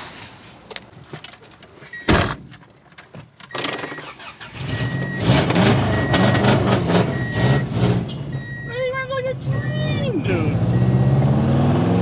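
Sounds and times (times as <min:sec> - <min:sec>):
short high beeps: 0:08.3 - 0:09.0.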